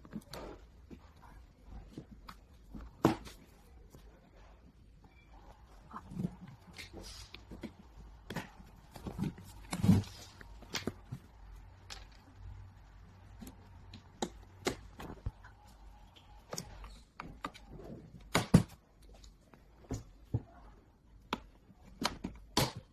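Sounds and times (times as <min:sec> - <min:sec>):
clicks and knocks of parts: 0:06.1 - 0:15.4.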